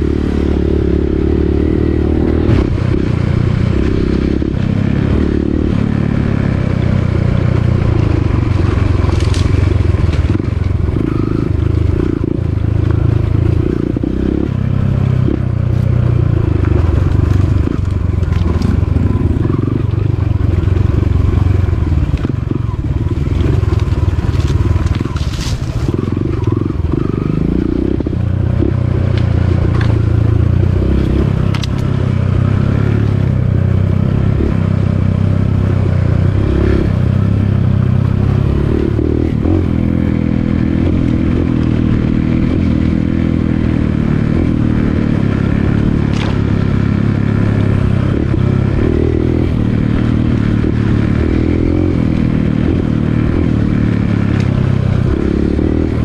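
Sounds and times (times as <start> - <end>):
dirt bike engine revving: 0.0 - 56.0
bike knocks and rattles: 46.0 - 46.5.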